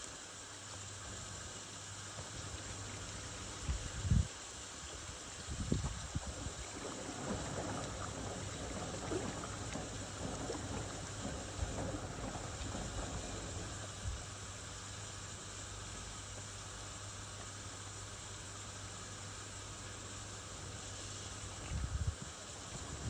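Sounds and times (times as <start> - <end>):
soft hiss: 0.0 - 23.0
water and laundry sloshing: 2.2 - 15.0, 21.4 - 23.0
washing machine motor hum: 5.5 - 14.9.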